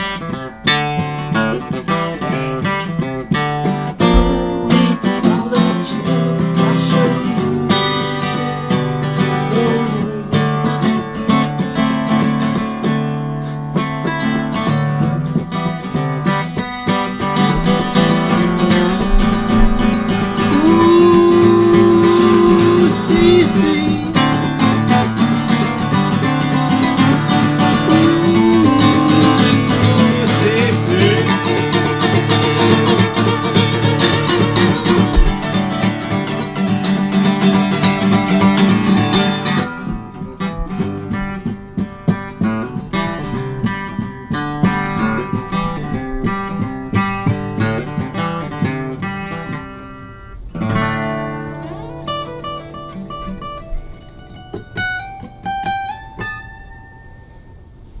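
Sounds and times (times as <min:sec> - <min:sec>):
acoustic guitar music: 0:00.0 - 0:58.0
sliding melody line: 0:04.0 - 0:05.8, 0:16.6 - 0:38.9.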